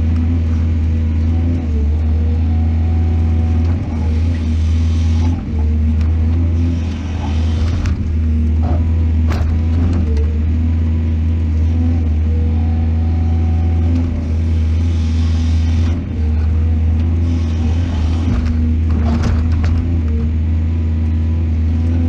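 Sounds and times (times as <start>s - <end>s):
excavator diesel engine: 0.0s - 22.0s
machine knocks and clanks: 18.2s - 20.0s.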